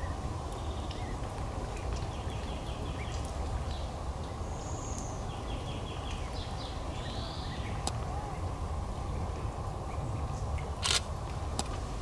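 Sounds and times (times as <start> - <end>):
small birds calling: 0.0 - 8.5.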